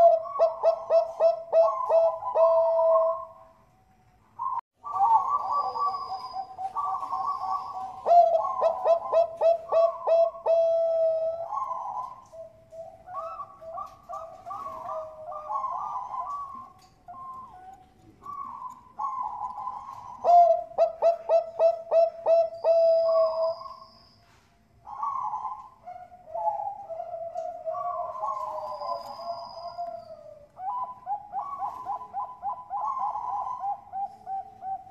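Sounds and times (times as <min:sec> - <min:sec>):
zebra doves cooing: 0:00.0 - 0:03.6, 0:04.4 - 0:23.8, 0:24.8 - 0:34.9.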